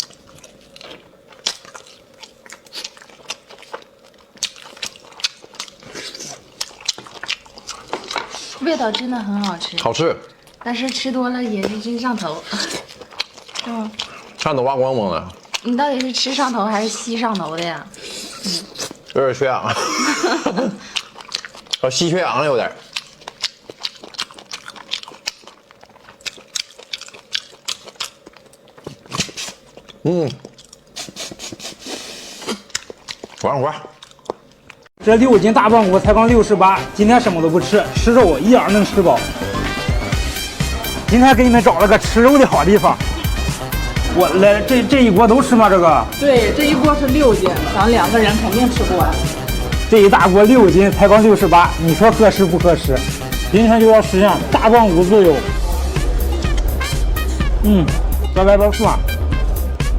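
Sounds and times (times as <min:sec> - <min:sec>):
mouth chewing and sucking: 0:00.0 - 0:19.3, 0:20.8 - 0:34.9, 0:38.3 - 0:59.9.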